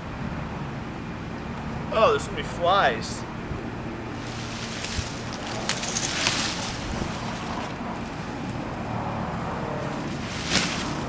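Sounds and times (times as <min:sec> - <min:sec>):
wind blowing across microphone: 0:02.6 - 0:11.0.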